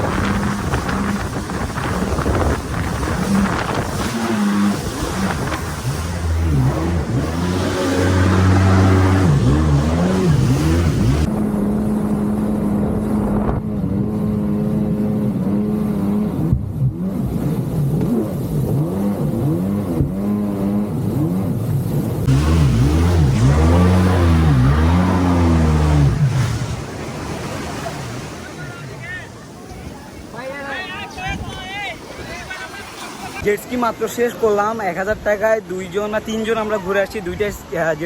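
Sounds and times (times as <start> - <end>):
wind and spray hissing: 0.0 - 11.3
jet ski engine running: 0.0 - 35.2.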